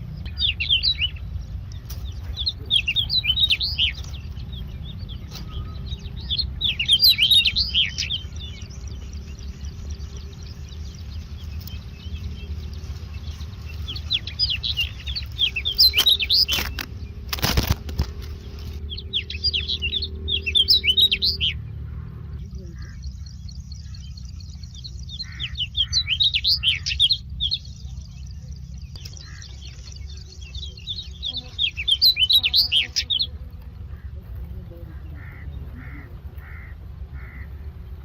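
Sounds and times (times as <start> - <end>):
chicks begging chirps: 0.0 - 38.0
steady low rumble: 0.0 - 38.0
brief rustle: 15.8 - 18.8.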